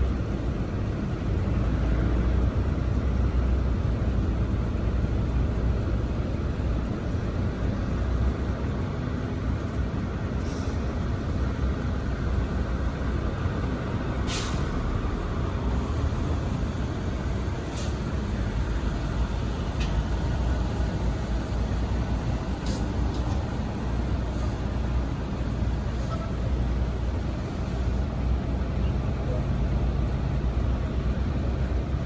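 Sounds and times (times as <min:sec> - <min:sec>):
truck diesel engine rumbling: 0:00.0 - 0:32.0
air hiss: 0:10.4 - 0:11.5, 0:14.2 - 0:15.0, 0:15.7 - 0:28.2.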